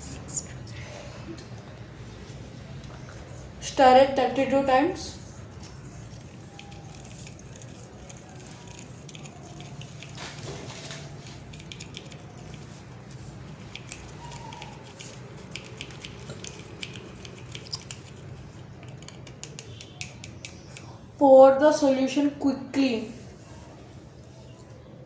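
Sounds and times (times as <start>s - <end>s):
spoon clicking against container: 18.8s - 20.9s.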